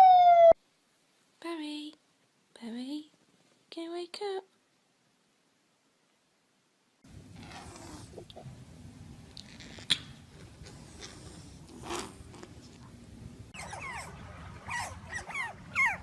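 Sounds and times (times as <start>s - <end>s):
low background noise: 0.0s - 16.0s
otters chirping: 13.6s - 16.0s.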